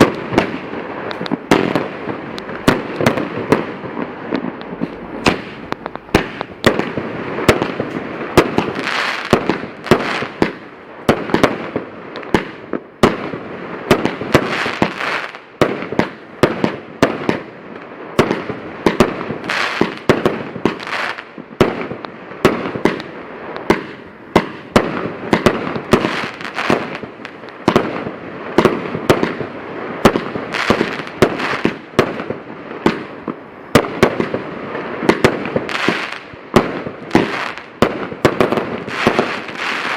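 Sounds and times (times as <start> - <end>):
fireworks hissing: 0.0 - 11.0
fireworks bangs: 0.0 - 39.9.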